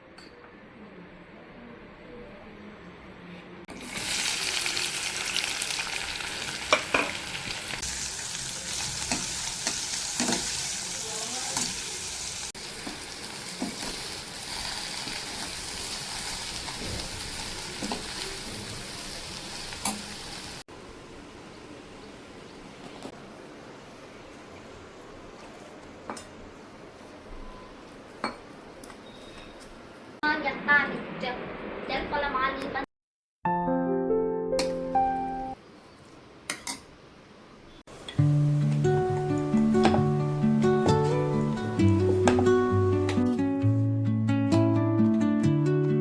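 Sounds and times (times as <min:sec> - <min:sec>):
food sizzling in a pan: 0:03.7 - 0:28.2, 0:37.9 - 0:43.4.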